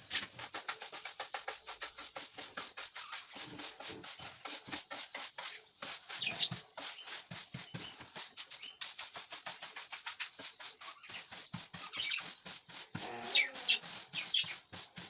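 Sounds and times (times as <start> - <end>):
loofah rubbing and scraping: 10.2 - 15.0.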